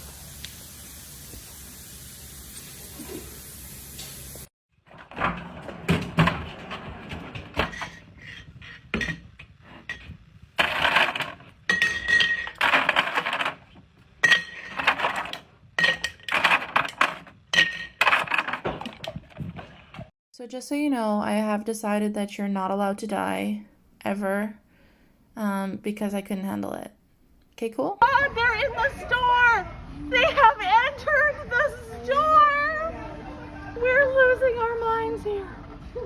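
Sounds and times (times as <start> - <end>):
hard objects clattering and clinking: 4.9 - 20.1.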